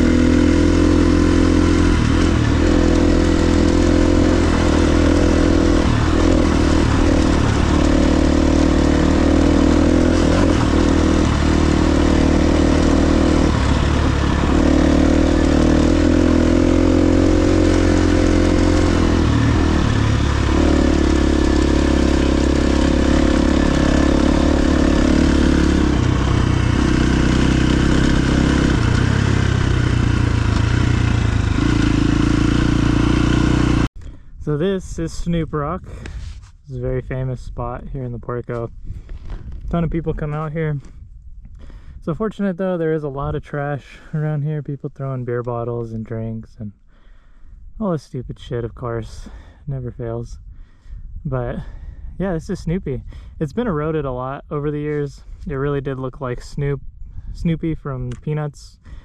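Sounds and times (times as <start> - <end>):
dirt bike engine revving: 0.0 - 33.9.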